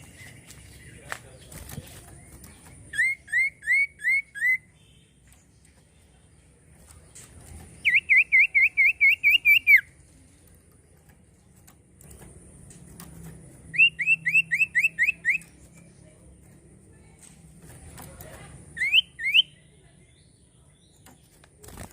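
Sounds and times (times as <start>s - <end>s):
bird whistling song: 2.9s - 5.1s, 7.8s - 10.0s, 13.6s - 15.8s, 18.8s - 19.8s.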